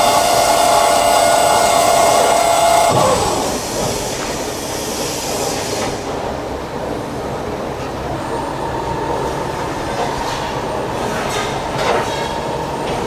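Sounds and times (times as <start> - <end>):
circular saw cutting metal: 0.0 - 3.7
machine noise: 0.0 - 4.0.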